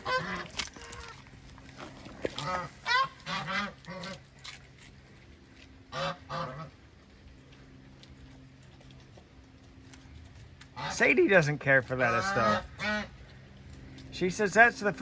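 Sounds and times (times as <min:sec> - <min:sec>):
geese honking: 0:00.0 - 0:01.2, 0:02.3 - 0:04.3, 0:05.9 - 0:06.8, 0:10.6 - 0:13.5.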